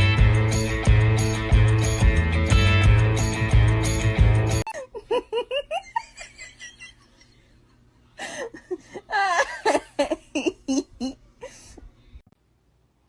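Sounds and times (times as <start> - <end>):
person laughing in bursts: 4.7 - 7.5, 8.2 - 11.7.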